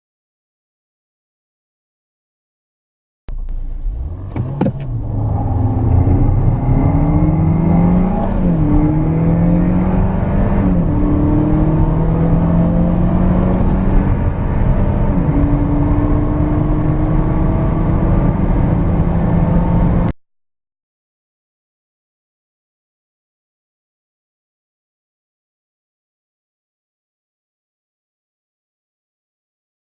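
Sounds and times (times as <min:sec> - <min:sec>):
car engine accelerating hard: 0:03.3 - 0:20.1.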